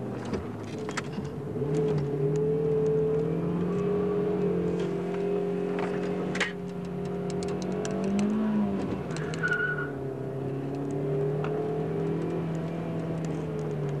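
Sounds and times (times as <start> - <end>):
car engine from inside cabin: 0.0 - 14.0
short high squeal: 9.3 - 10.0.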